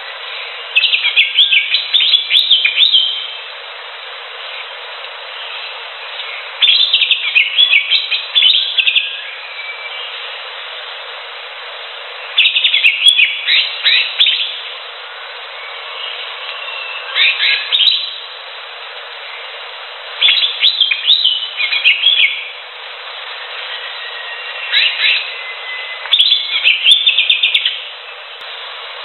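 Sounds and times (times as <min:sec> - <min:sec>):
steady background hiss: 0:00.0 - 0:29.0
bird chirping rapidly: 0:00.8 - 0:03.4, 0:05.5 - 0:10.2, 0:12.3 - 0:14.7, 0:15.6 - 0:18.3, 0:20.2 - 0:22.5, 0:23.6 - 0:27.9.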